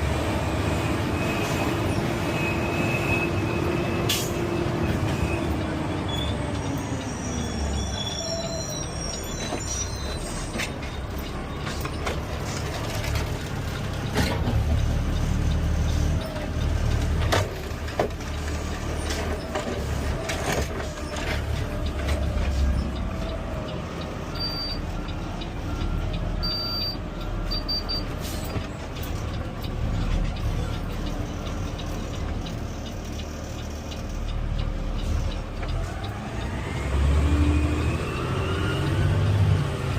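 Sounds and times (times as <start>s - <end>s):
truck engine rumbling: 0.0s - 39.9s
truck clunks and knocks: 9.4s - 23.7s.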